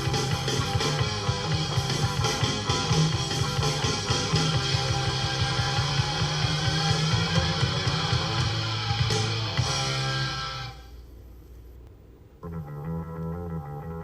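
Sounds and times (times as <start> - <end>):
drum kit playing: 0.0 - 10.9
electric guitar: 0.0 - 10.9.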